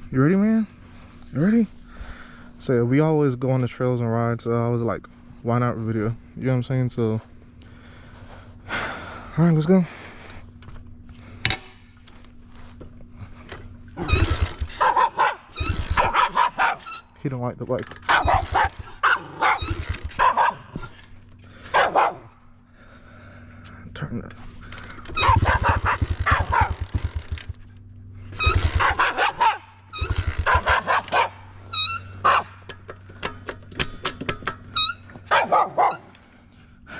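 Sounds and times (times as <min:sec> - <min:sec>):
faint steady hum: 0:00.0 - 0:36.9
dog yipping: 0:14.0 - 0:17.1, 0:18.0 - 0:20.9, 0:21.7 - 0:22.3, 0:25.2 - 0:26.8, 0:28.4 - 0:32.6, 0:34.8 - 0:36.1
dog barking: 0:14.7 - 0:17.0, 0:18.1 - 0:20.8, 0:21.7 - 0:22.4, 0:25.2 - 0:26.8, 0:28.8 - 0:29.8, 0:30.4 - 0:31.5, 0:32.2 - 0:32.6, 0:35.2 - 0:36.1.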